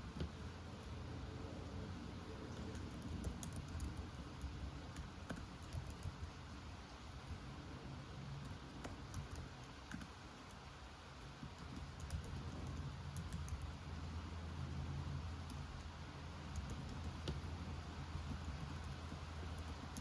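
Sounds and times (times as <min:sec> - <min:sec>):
computer keyboard typing: 0:02.3 - 0:06.4, 0:08.4 - 0:10.6, 0:11.4 - 0:13.8, 0:15.4 - 0:20.0.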